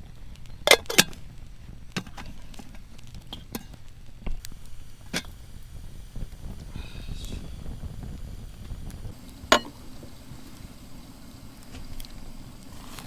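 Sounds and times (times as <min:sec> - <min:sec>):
low steady rumble: 0:03.9 - 0:13.0.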